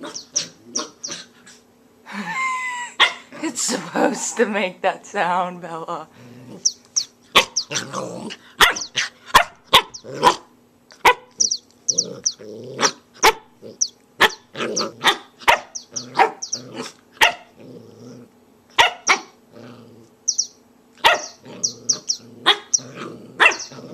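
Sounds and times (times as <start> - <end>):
puppy high squeaks: 0.0 - 1.2, 6.6 - 7.8, 8.7 - 9.0, 11.4 - 16.7, 20.3 - 22.9, 23.5 - 23.7
puppy barking: 0.0 - 1.3, 3.0 - 3.3, 6.6 - 17.6, 18.7 - 19.4, 21.0 - 23.9
puppy growling: 0.0 - 1.6, 6.1 - 18.4, 19.1 - 20.3, 21.0 - 23.9.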